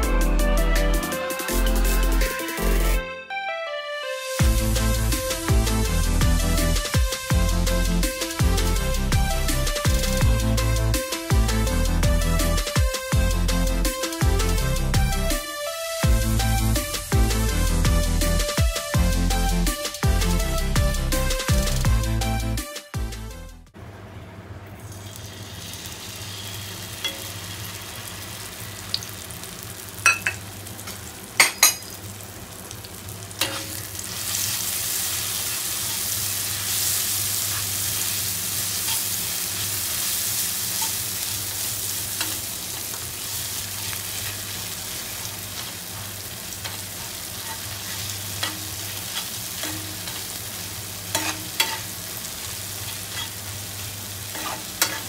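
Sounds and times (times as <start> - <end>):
paste sizzling in oil: 25.0 - 30.4, 32.8 - 55.0
spatula scraping a pan: 46.6 - 50.3, 51.1 - 51.9, 52.9 - 53.4, 54.3 - 55.0.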